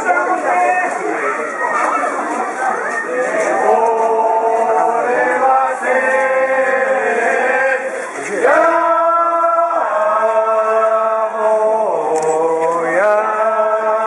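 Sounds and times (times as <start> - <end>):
men singing a chant: 3.4 - 14.0.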